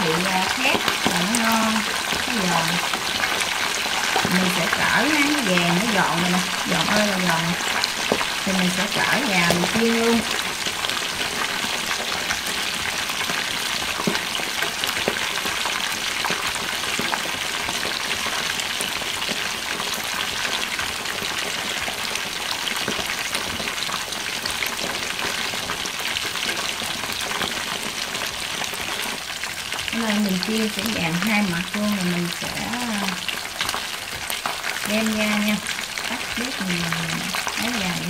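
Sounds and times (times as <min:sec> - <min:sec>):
oil popping: 0:00.0 - 0:18.2
chicken sizzling in hot oil: 0:00.0 - 0:38.0.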